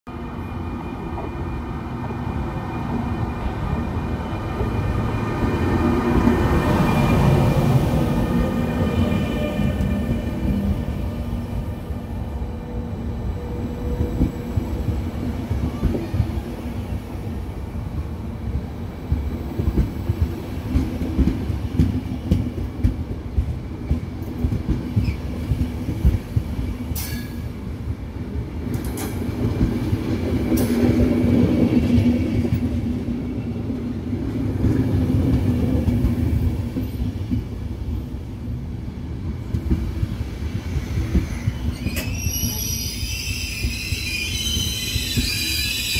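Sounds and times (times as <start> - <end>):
train coaches rumbling past: 0.1 - 45.9
high squeals: 41.4 - 45.9.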